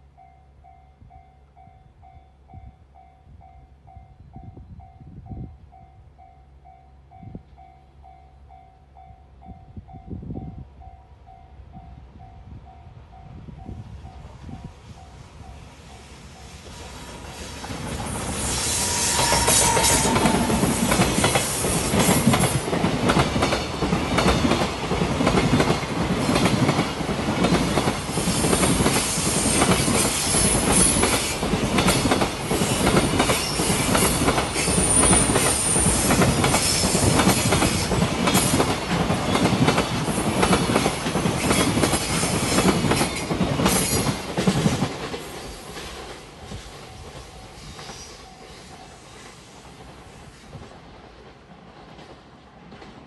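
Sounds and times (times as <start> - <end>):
train wheels clickety-clack: 16.4 - 53.0
high wheel squeal: 17.3 - 21.8.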